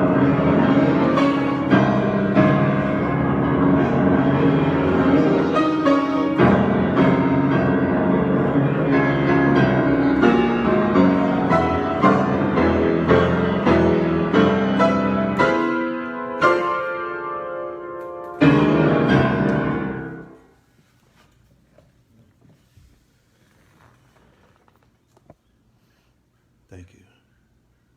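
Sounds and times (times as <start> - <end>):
solo piano improvisation: 0.0 - 20.6.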